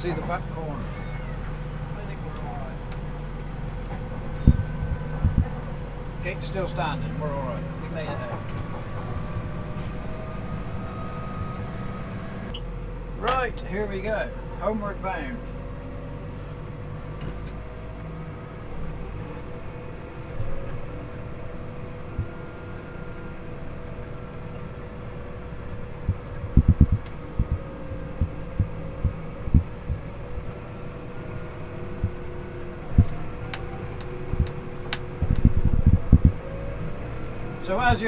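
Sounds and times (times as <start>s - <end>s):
engine and road drone: 0.0s - 38.0s
short low thumps: 4.0s - 5.6s, 26.0s - 30.1s, 35.2s - 36.4s.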